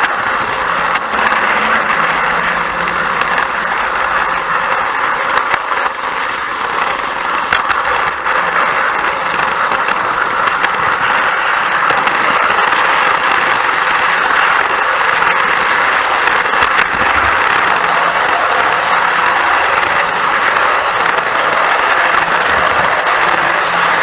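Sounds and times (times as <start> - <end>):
faint clicks of track: 0.0 - 24.0
train running on track: 0.0 - 24.0.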